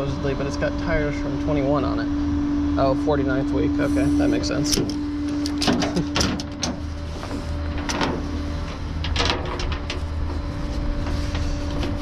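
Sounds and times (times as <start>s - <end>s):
scuffs and rustles: 9.8s - 12.0s.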